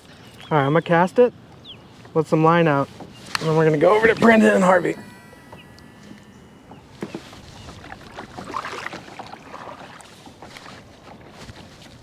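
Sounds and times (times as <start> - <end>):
kayak paddling splashes: 6.9 - 12.0.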